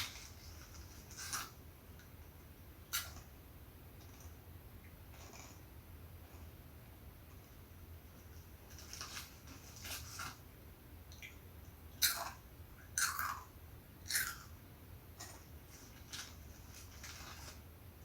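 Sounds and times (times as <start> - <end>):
person chewing crunchy snack: 13.0 - 13.5, 14.1 - 14.5.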